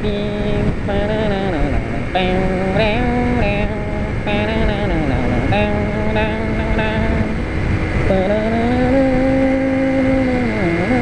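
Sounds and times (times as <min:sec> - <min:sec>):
motorcycle engine running: 0:00.0 - 0:07.4
wind rush: 0:00.0 - 0:11.0.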